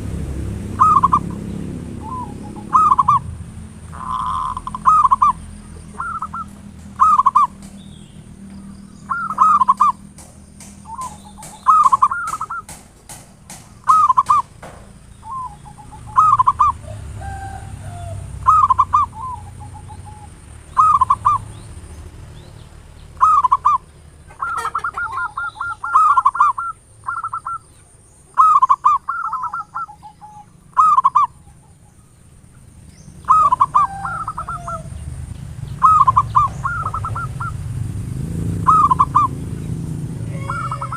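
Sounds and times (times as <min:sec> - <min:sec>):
dove cooing: 0:00.7 - 0:14.6, 0:15.2 - 0:21.6, 0:23.2 - 0:27.6, 0:28.4 - 0:31.8, 0:33.2 - 0:35.1, 0:35.8 - 0:37.7, 0:38.5 - 0:39.4, 0:40.2 - 0:40.9
sharp clicks: 0:09.3 - 0:14.9.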